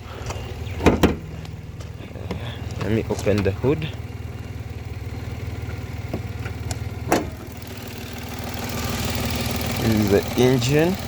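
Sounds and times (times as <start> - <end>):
car engine idling: 0.0 - 11.0
hood release click: 5.6 - 7.5.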